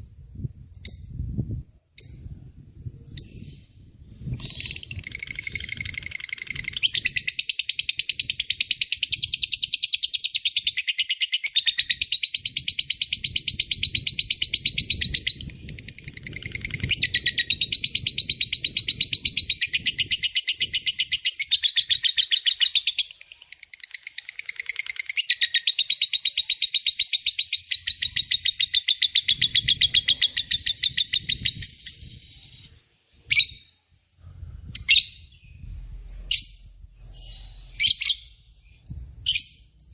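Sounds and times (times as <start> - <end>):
lovebird rattling chatter: 4.3 - 8.0, 12.7 - 25.6.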